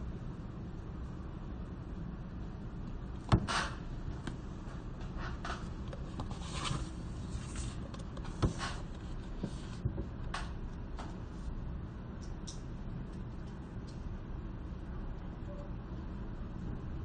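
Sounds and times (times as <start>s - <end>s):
low room hum: 0.0s - 17.0s
soft rustles and scrapes: 4.2s - 10.1s.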